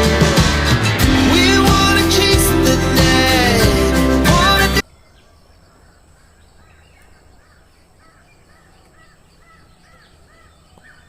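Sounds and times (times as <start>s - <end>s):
bird calling: 4.8s - 11.0s.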